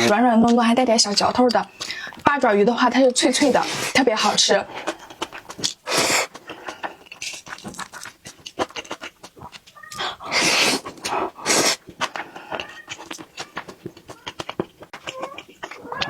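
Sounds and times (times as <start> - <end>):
wet chewing with clicks: 0.0 - 16.0
long slurps: 4.8 - 8.1, 9.4 - 13.2.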